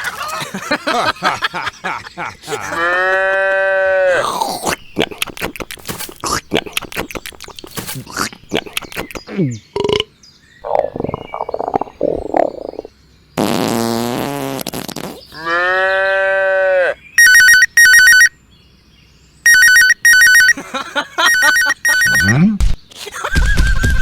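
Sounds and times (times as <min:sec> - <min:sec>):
cartoon frog buzzing croak: 0:09.8 - 0:15.5.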